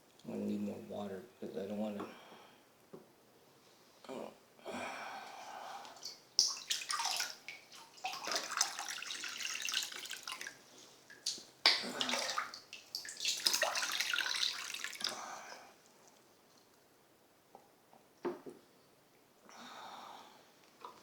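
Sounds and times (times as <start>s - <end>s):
water splashing into a container: 6.0s - 15.2s.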